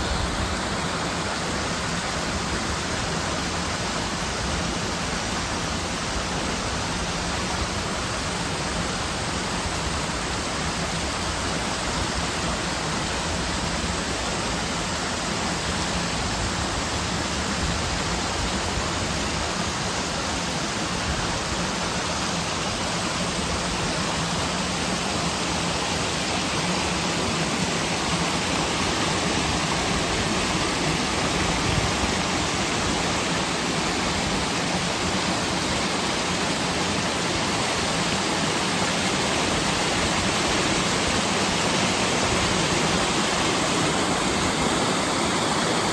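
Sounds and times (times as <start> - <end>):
stream rushing over rocks: 0.0 - 45.9.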